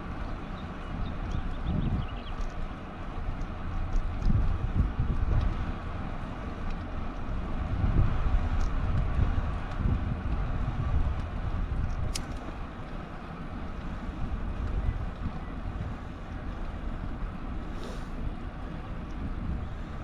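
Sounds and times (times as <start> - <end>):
wind buffeting microphone: 0.0 - 20.0
sharp click: 12.0 - 12.4.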